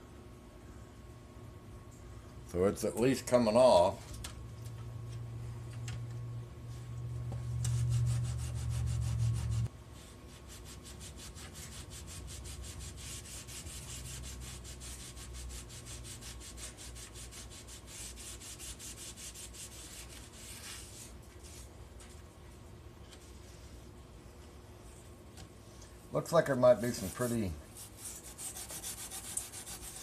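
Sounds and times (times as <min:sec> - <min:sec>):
low hum: 0:04.3 - 0:09.7
scrubbing pad on metal blade: 0:26.6 - 0:30.0.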